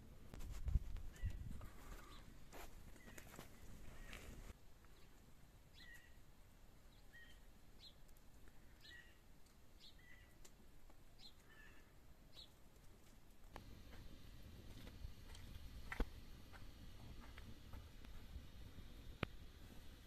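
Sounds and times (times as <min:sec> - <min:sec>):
small bird chirping faintly: 0:03.0 - 0:10.5.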